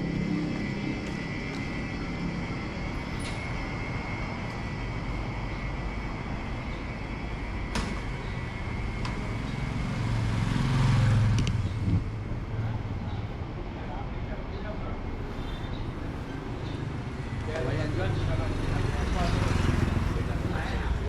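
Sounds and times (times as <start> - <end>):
faint high whine: 0.0 - 11.0
low engine hum: 0.0 - 21.0
vehicle rumble: 0.0 - 21.0.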